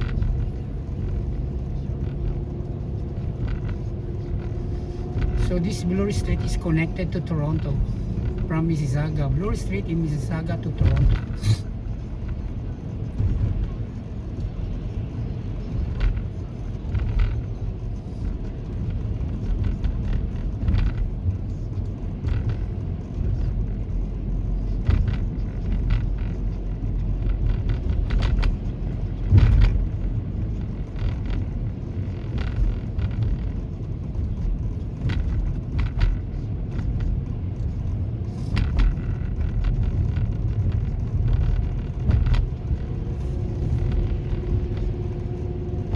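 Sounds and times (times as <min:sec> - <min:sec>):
vehicle road and engine rumble: 0:00.0 - 0:45.9.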